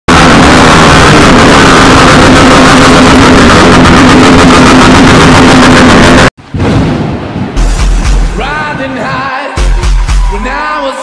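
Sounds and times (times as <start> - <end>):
motorcycle engine revving: 0.4 - 6.3.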